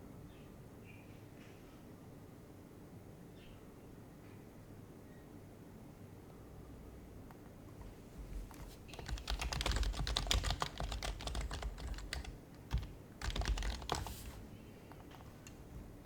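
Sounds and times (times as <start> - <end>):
typing on a keyboard: 8.2 - 16.0.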